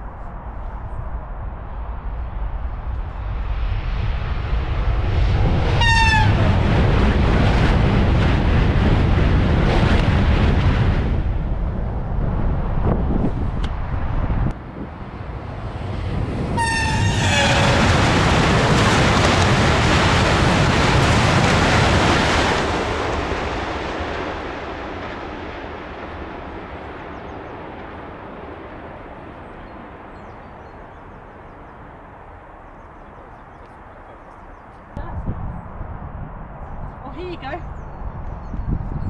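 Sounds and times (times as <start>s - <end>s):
loud low rumble: 0.0s - 24.7s
high-speed train passing: 0.0s - 38.7s.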